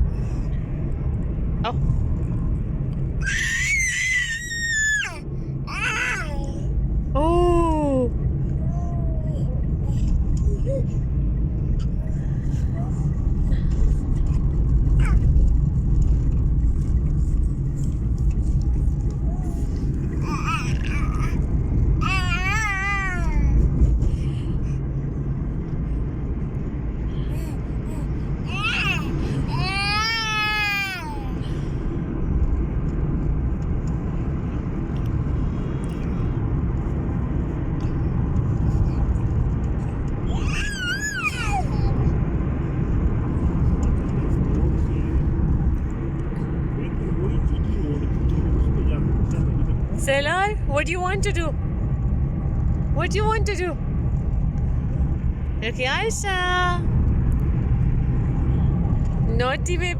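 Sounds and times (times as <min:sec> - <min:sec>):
car driving heard from cabin: 0:00.0 - 0:59.9
child squealing: 0:03.2 - 0:06.5, 0:20.2 - 0:21.4, 0:22.0 - 0:23.5, 0:40.3 - 0:42.1.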